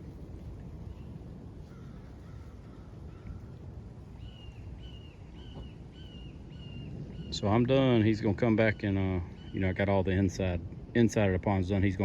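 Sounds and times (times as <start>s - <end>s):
steady low rumble: 0.0s - 4.7s
bird calling: 4.2s - 7.6s, 8.6s - 10.4s.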